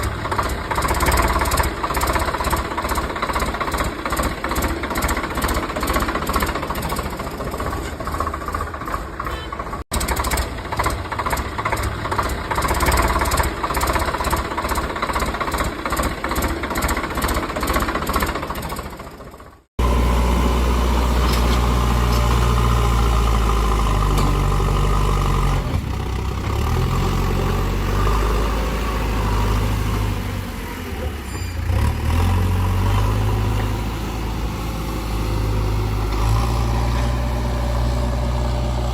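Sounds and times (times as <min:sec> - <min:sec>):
engine with fast knocking pulse: 0:00.0 - 0:19.9.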